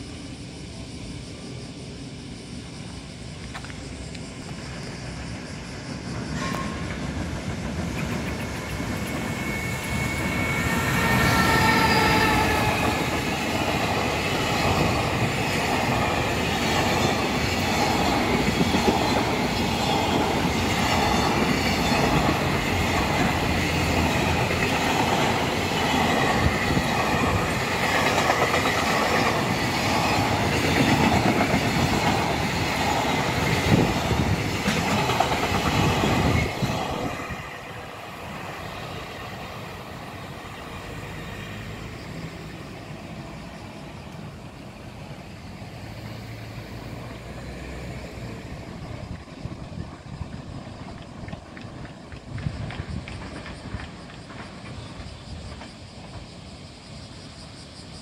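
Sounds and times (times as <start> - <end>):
electric locomotive passing: 0.0 - 58.0
locomotive whine: 0.0 - 58.0
wheels clacking over rail joints: 6.3 - 39.4
wheel squeal: 7.8 - 13.6.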